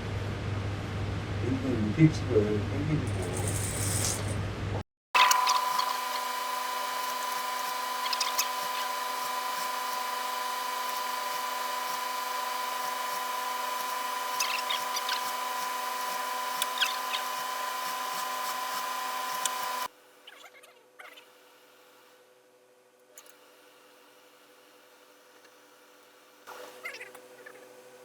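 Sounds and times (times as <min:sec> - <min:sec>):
electrical motor hum: 0:00.0 - 0:20.2.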